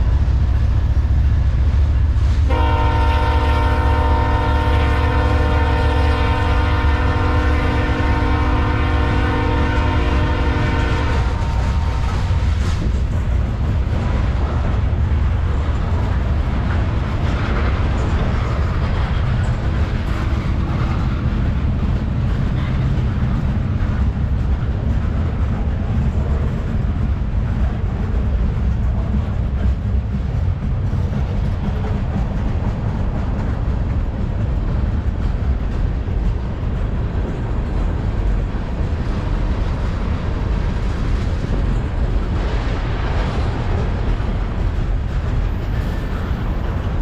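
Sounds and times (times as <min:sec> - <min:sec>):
freight train rumbling past: 0:00.0 - 0:47.0
locomotive air horn chord: 0:02.5 - 0:11.6.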